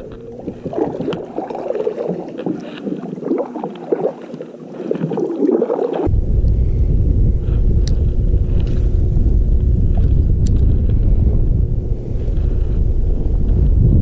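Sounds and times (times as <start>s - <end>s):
water gurgling around kayak: 0.0s - 14.0s
wind buffeting microphone: 6.0s - 14.0s.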